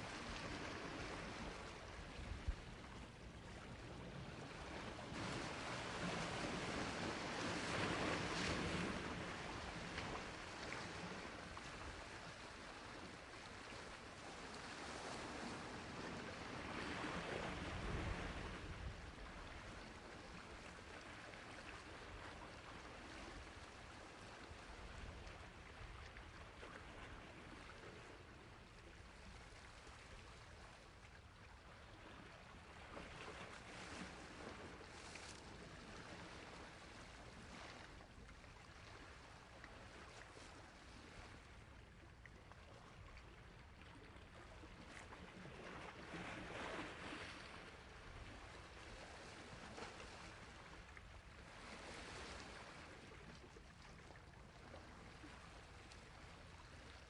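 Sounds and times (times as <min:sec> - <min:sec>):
sea waves washing on shore: 0:00.0 - 0:30.4.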